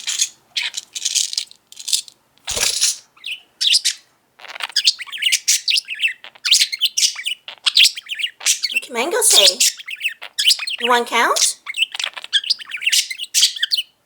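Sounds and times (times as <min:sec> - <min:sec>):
budgerigar chattering and warbling: 0:03.2 - 0:14.0.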